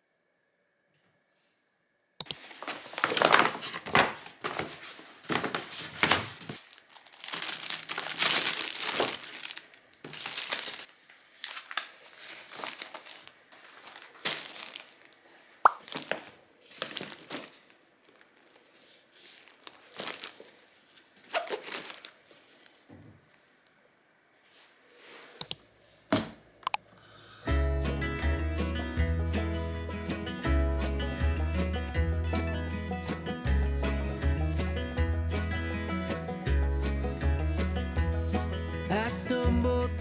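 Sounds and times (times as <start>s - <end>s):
packaging crinkling and tearing: 2.4s - 22.8s.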